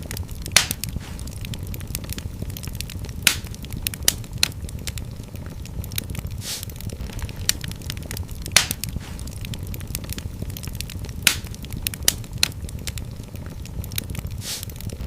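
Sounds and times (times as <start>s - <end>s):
fire crackling in a fireplace: 0.0s - 15.0s
brief hiss: 6.4s - 6.7s, 14.4s - 14.7s.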